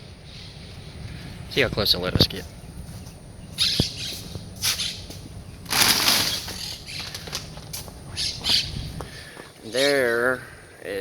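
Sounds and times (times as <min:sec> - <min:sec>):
bird wings flapping: 0:05.7 - 0:07.6.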